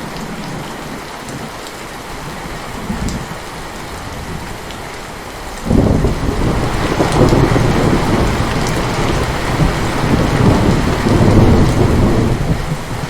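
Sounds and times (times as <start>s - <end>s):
heavy rain: 0.0s - 13.0s
rolling thunder: 5.6s - 13.0s.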